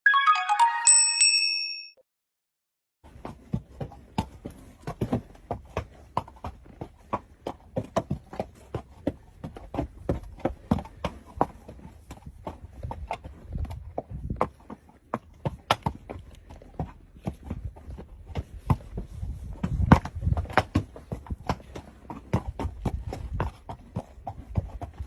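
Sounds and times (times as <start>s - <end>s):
short chime: 0.1s - 2.0s.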